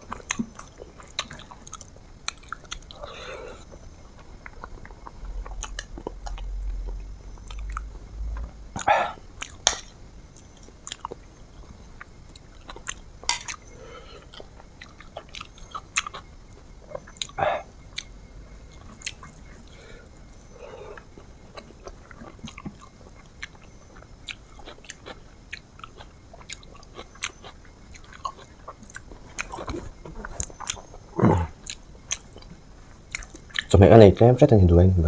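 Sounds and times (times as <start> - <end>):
person chewing and biting food: 0.0 - 9.8, 21.0 - 32.5, 33.1 - 33.7.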